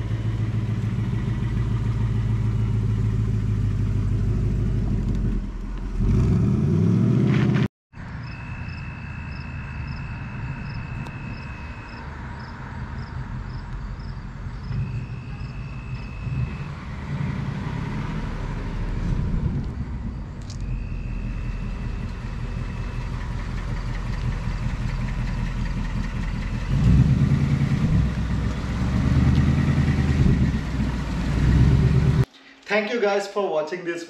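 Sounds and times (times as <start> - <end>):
car engine running: 0.0 - 6.4, 12.4 - 32.3.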